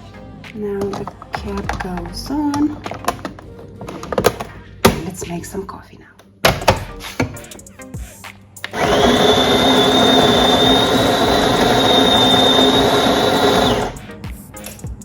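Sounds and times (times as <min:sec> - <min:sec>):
coffee grinder grinding beans: 0:08.7 - 0:14.0.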